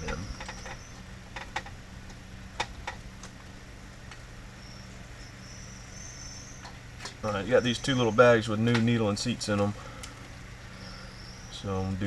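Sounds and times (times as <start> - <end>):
faint insect trilling: 0.0 - 1.2, 4.4 - 9.4, 10.5 - 12.0.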